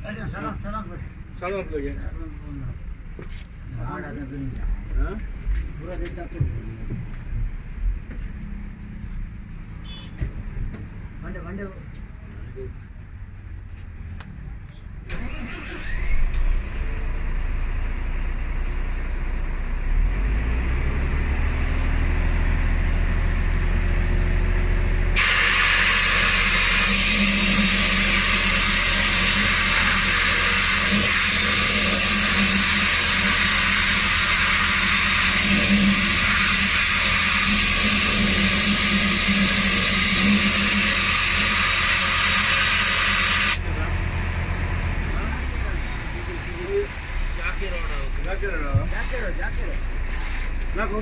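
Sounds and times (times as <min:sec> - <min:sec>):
bus diesel engine idling: 0:43.6 - 0:51.0.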